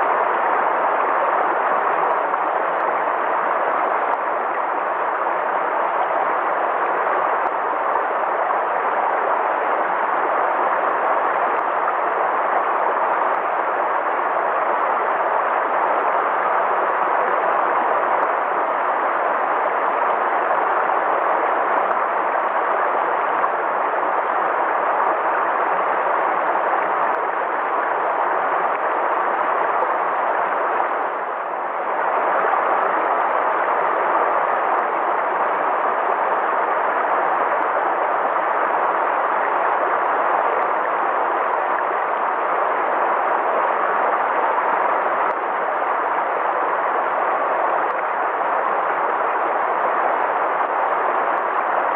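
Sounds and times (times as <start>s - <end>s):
river water rushing: 0.0s - 51.9s.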